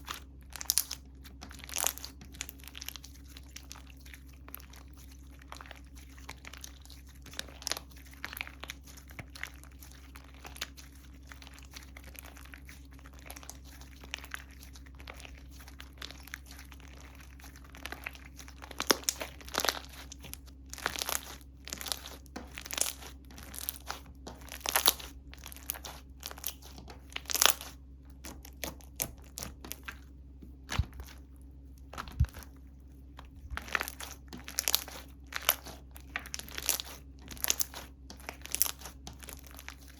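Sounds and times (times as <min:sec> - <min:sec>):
slime crackling and popping: 0:00.0 - 0:31.2, 0:33.3 - 0:39.9
low hum: 0:19.4 - 0:39.9.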